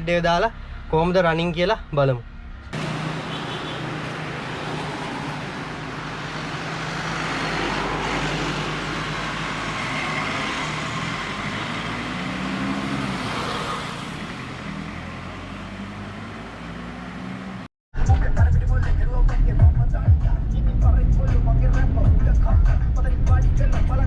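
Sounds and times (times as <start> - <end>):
road and wind noise: 0.0 - 17.7
diesel engine running: 2.8 - 16.8.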